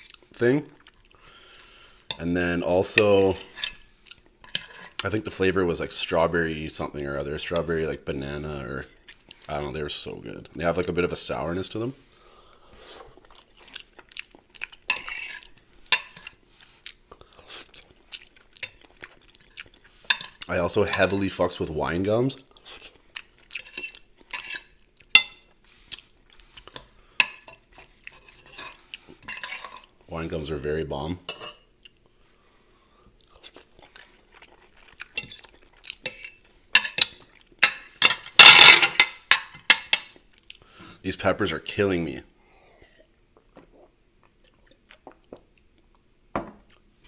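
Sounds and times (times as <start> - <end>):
chewing with wet mouth clicks: 0.0 - 1.2, 13.2 - 14.8, 16.2 - 19.9, 33.2 - 36.4, 40.3 - 40.6
cutlery clinking on a plate: 36.1 - 40.1.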